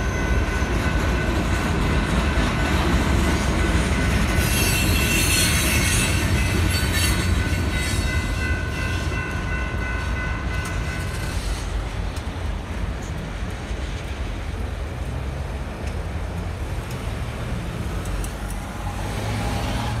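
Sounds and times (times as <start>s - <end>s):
freight train rumbling: 0.0s - 20.0s
wheel squeal: 4.3s - 8.2s.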